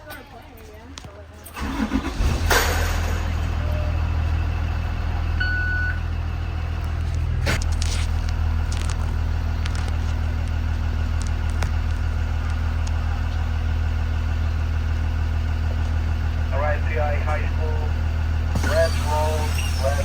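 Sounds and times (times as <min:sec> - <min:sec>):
bus engine idling: 0:00.0 - 0:20.0
short beep: 0:05.4 - 0:06.1.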